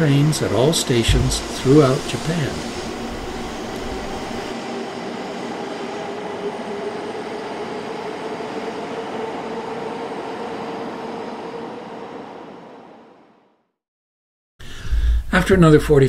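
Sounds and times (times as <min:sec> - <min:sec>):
train wheels rushing on rails: 0:00.0 - 0:11.6
electric motor whine: 0:01.0 - 0:04.6.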